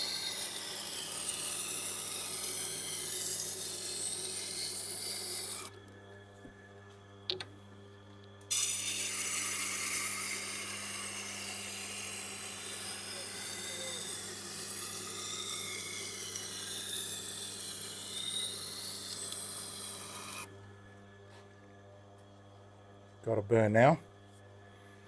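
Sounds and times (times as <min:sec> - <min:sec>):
knife grinding on sharpening wheel: 0:00.0 - 0:05.7, 0:08.5 - 0:20.5.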